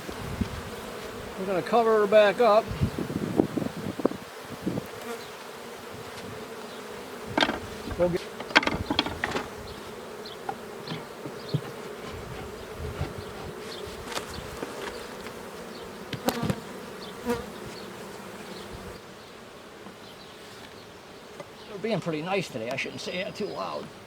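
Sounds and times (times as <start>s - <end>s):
bees buzzing: 0.0s - 24.0s
knocks on wooden hive boxes: 7.3s - 13.3s, 16.1s - 17.8s.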